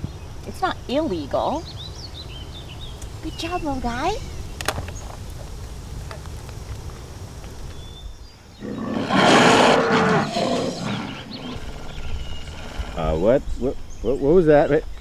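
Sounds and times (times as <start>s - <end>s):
monster roar: 8.6s - 13.4s.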